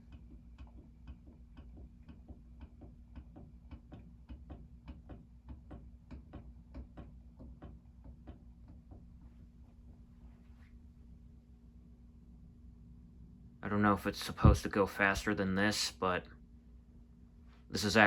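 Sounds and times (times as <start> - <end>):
fan ticking: 0.0 - 9.1
ceiling fan motor hum: 0.0 - 18.0.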